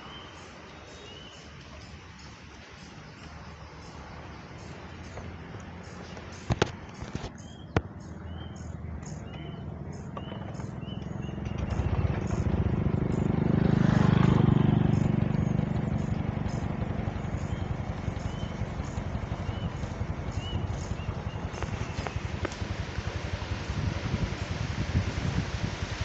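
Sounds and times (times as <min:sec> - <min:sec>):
small birds chirping: 0:00.0 - 0:23.4
vehicle passing: 0:09.4 - 0:26.0.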